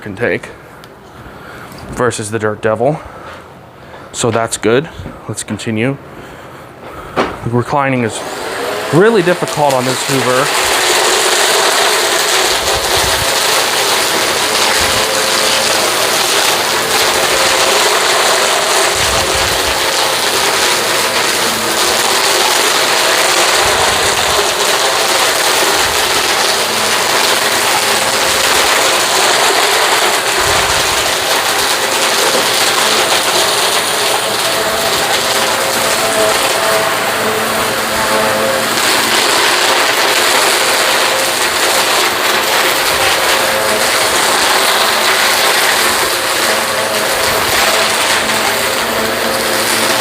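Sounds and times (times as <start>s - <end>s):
low thuds of vacuum pushed: 7.1s - 7.4s
vacuum cleaner running: 7.2s - 50.0s.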